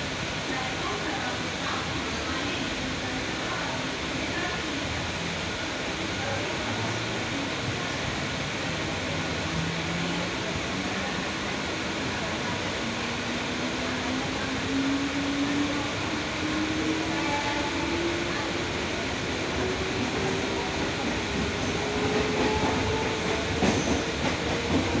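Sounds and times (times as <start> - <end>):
train wheels rumbling: 13.2 - 25.0
train wheel clack: 21.9 - 25.0.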